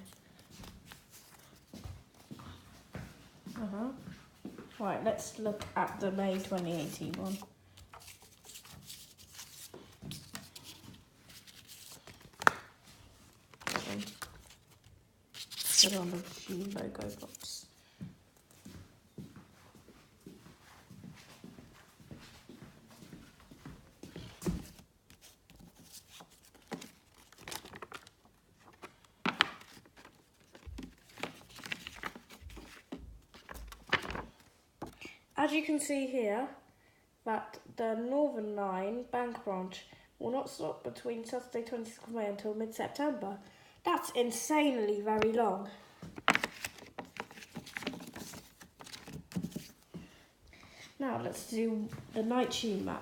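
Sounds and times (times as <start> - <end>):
paper rustling and crackling: 6.3 - 17.7, 24.2 - 35.0, 46.1 - 49.8.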